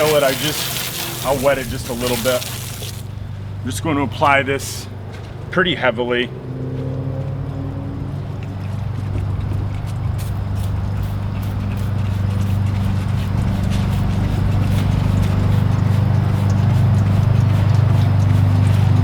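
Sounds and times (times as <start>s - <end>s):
spray bottle squirting: 0.0s - 3.1s, 10.2s - 19.0s
low mechanical hum: 0.0s - 19.0s.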